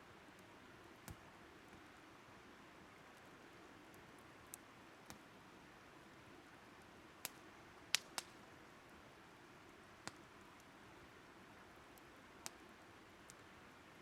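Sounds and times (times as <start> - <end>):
faint steady hiss: 0.0 - 14.0
firewood crackling and popping: 0.4 - 2.0, 3.9 - 5.3, 6.8 - 8.4, 10.0 - 10.8, 11.8 - 13.5.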